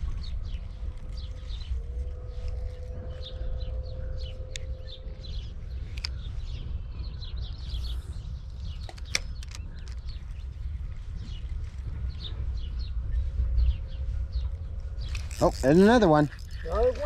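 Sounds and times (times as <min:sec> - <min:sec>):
low steady rumble: 0:00.0 - 0:17.0
small birds chirping: 0:00.0 - 0:17.0
sharp clicks: 0:08.7 - 0:10.4.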